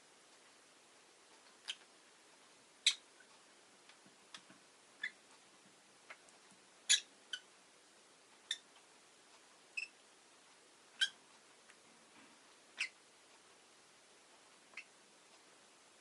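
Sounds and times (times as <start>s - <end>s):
lovebird chirping: 2.8s - 3.0s, 5.0s - 5.2s, 6.8s - 7.5s, 8.4s - 8.7s, 9.7s - 10.0s, 11.0s - 11.2s, 12.8s - 13.0s, 14.7s - 15.0s.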